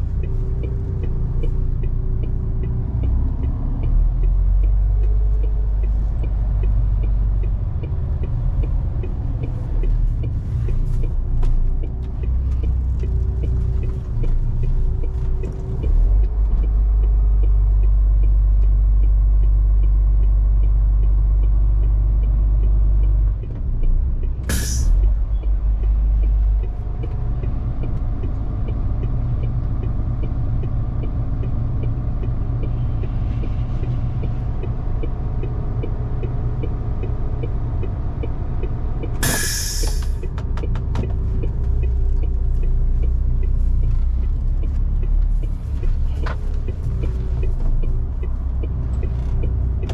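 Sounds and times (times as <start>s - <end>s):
truck diesel engine drone: 0.0s - 49.9s
air release hiss: 24.5s - 25.0s, 39.2s - 40.2s.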